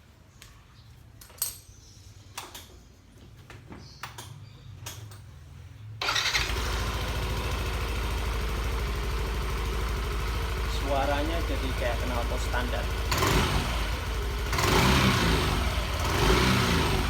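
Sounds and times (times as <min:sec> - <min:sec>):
scooter engine starting and idling: 0:06.0 - 0:17.0.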